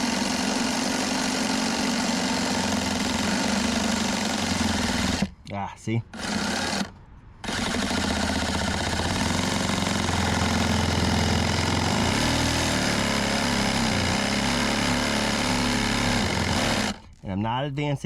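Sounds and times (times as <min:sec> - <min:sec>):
reciprocating saw cutting wood: 0:00.0 - 0:05.4, 0:06.1 - 0:17.1.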